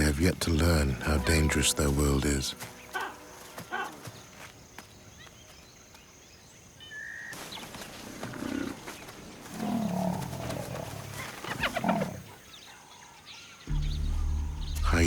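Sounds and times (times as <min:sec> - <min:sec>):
lion growling: 0:08.2 - 0:08.9, 0:09.5 - 0:12.4.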